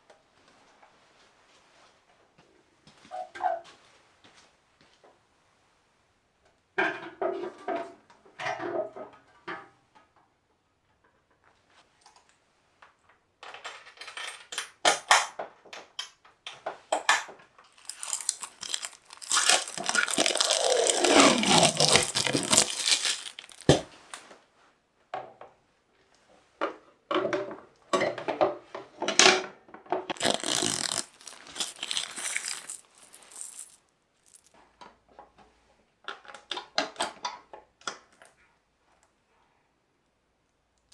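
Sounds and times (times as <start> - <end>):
small metal parts clinking: 17.8 - 23.8, 30.2 - 34.5.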